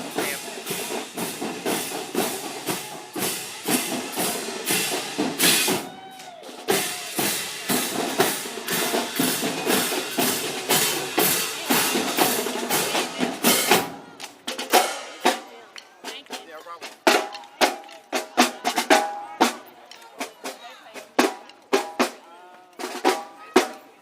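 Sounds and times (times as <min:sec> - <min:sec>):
marching drumline playing: 0:00.0 - 0:23.9.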